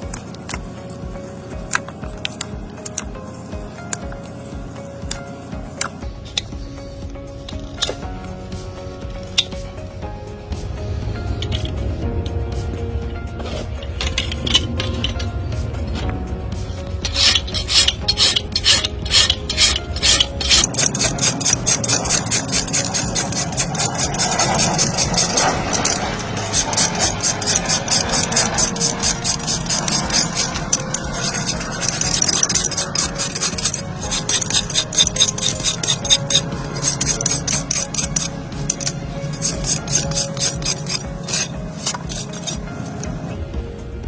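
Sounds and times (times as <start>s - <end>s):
rasp filing a hoof: 17.0s - 43.1s.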